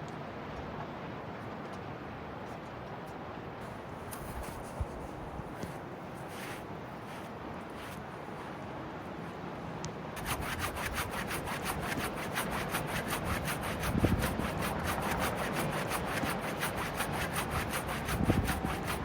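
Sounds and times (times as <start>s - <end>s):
fast scraping strokes: 6.2s - 8.6s, 10.2s - 19.0s.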